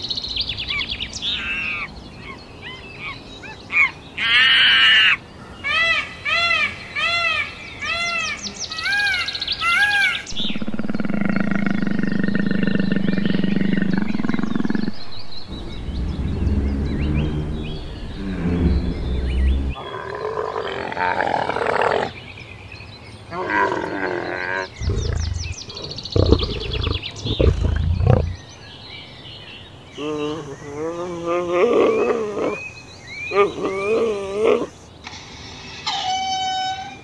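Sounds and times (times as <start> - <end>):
wavering animal calls: 15.5 - 19.9, 23.5 - 28.4, 30.0 - 34.9
big cat roars: 15.5 - 22.1, 23.3 - 28.4.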